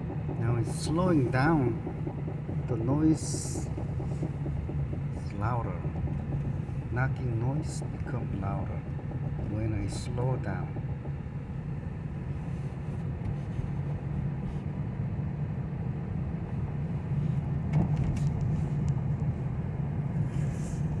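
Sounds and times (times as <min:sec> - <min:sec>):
wheel knocking: 0:00.0 - 0:13.5
car rolling with rough rumble: 0:00.0 - 0:21.0.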